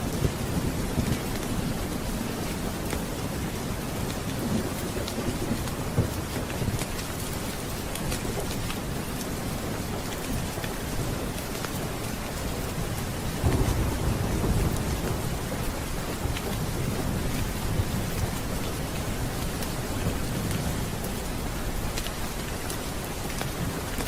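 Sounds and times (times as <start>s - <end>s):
steady rain: 0.0s - 24.0s
low rumble of thunder: 12.6s - 23.9s.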